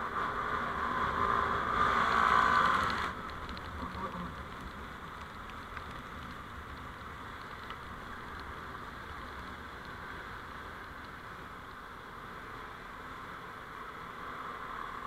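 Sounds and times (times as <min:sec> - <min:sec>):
vehicle road noise: 0:00.0 - 0:15.0
faint ticks: 0:02.8 - 0:11.2.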